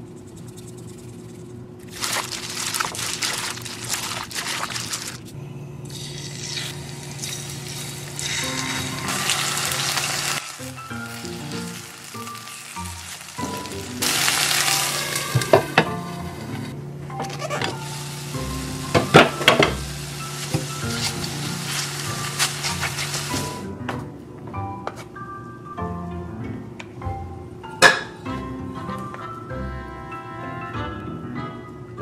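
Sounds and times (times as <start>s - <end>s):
chicken sizzling in a pan: 6.0s - 16.2s, 17.4s - 23.6s.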